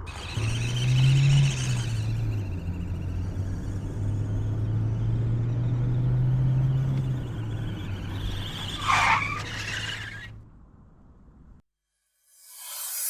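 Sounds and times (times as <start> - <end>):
model airplane motor and propeller: 0.0 - 8.8.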